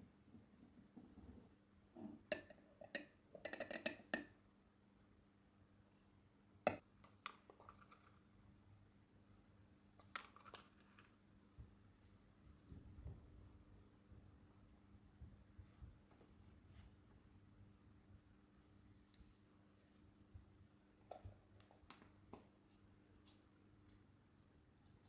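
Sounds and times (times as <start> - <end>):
dishes and cutlery clinking: 2.3 - 4.3.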